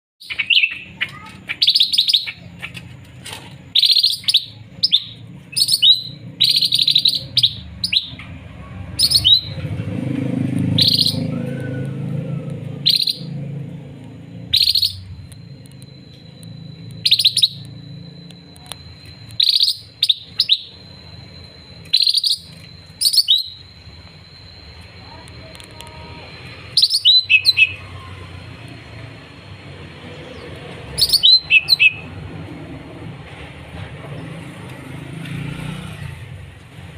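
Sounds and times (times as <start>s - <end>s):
songbird singing chirpy phrases: 0.2s - 32.4s
thin steady high tone: 11.0s - 32.2s.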